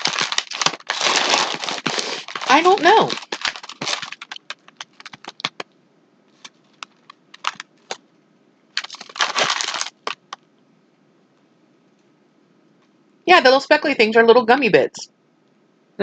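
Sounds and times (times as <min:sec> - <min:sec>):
cookies crunching: 0:00.0 - 0:05.6, 0:06.4 - 0:08.0, 0:08.8 - 0:10.4.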